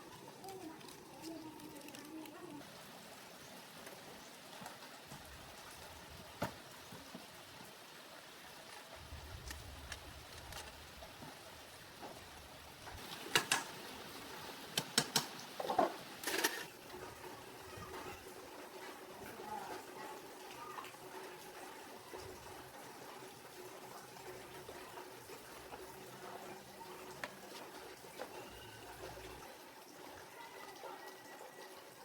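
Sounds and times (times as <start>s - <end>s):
sharp clicks and knocks: 13.3s - 13.8s, 14.8s - 16.6s.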